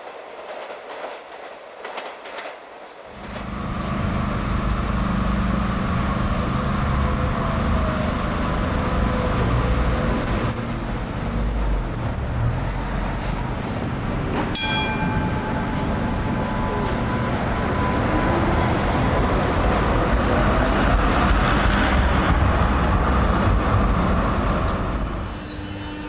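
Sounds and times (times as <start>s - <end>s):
tram low rumble: 0.0s - 26.0s
high-pitched wheel squealing: 10.5s - 13.8s.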